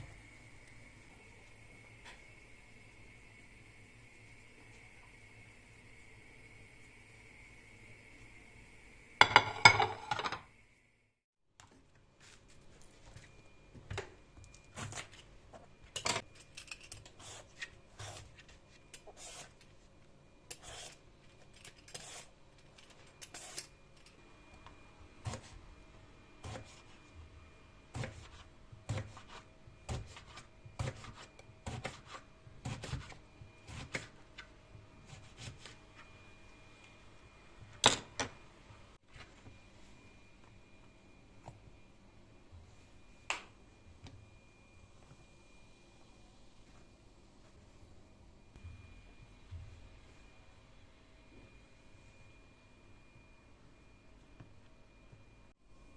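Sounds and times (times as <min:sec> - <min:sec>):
faint steady hum: 0:00.0 - 0:55.9
dishes clattering: 0:09.2 - 0:10.4.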